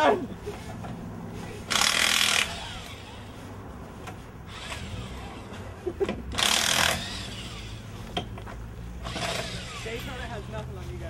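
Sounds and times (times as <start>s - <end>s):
power tool running: 1.7s - 3.3s, 4.5s - 5.4s, 6.3s - 7.9s, 9.0s - 10.3s.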